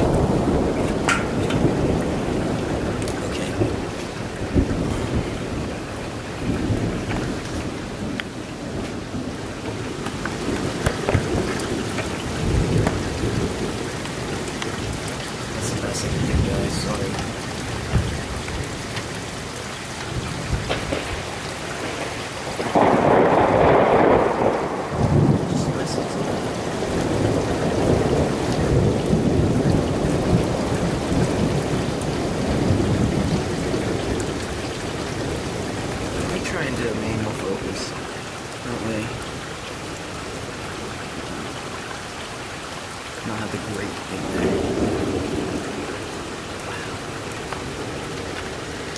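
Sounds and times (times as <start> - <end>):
sharp thunder cracks: 0.0 - 13.9, 20.1 - 34.2, 43.4 - 48.2
rumbling thunder: 0.0 - 41.8, 43.2 - 48.9
rain falling: 0.0 - 48.9.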